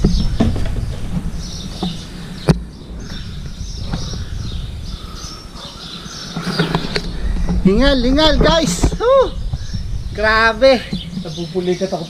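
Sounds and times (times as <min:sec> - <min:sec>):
low outdoor rumble: 0:00.0 - 0:12.0
small birds chirping: 0:00.0 - 0:12.0.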